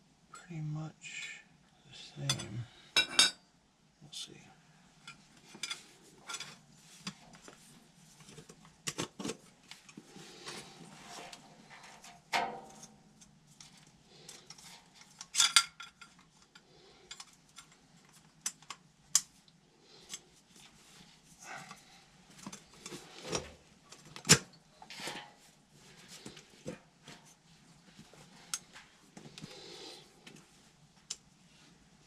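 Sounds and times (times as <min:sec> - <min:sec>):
metal clanks: 0:11.7 - 0:13.0.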